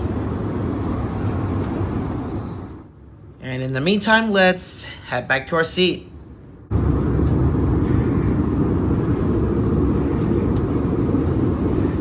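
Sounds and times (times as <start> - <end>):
airplane cabin engine and airflow noise: 0.0 - 12.0.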